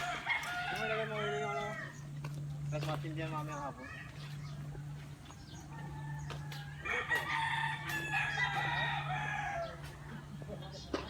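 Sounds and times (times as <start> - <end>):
rooster crowing: 0.0 - 2.1, 5.5 - 10.2
steady low hum: 0.0 - 11.0.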